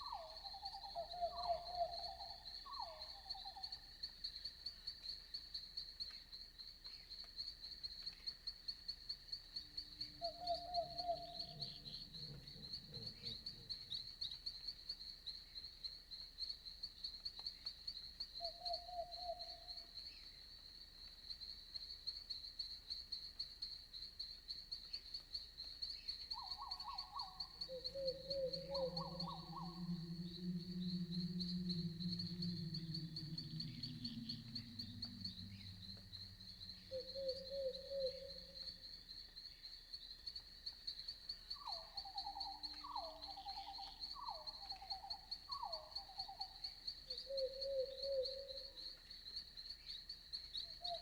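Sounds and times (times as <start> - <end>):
crickets chirping: 0.0 - 51.0
warbling animal calls: 27.2 - 38.6.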